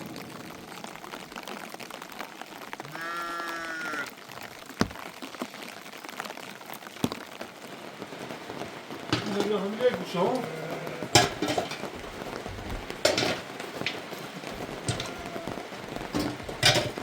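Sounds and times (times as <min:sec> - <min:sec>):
animal bleating: 0:02.8 - 0:04.1, 0:10.4 - 0:11.2, 0:14.9 - 0:15.7
steady hiss: 0:07.0 - 0:17.0
sharp knocks: 0:14.9 - 0:17.0.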